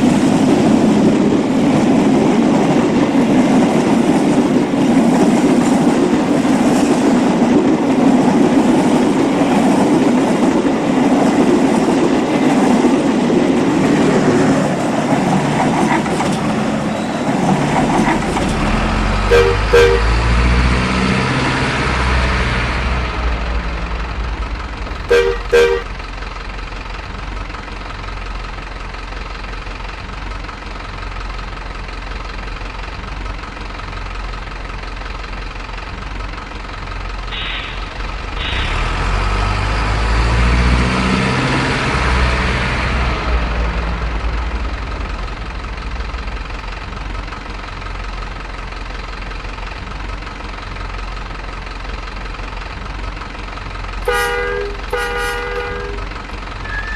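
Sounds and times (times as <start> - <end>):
toy locomotive engine rumbling: 0.0 - 20.7, 22.8 - 40.4, 43.0 - 56.9
toy train horn toots: 19.3 - 20.2, 25.1 - 26.0, 37.4 - 37.8, 54.0 - 56.9
hissy blips: 37.3 - 38.7.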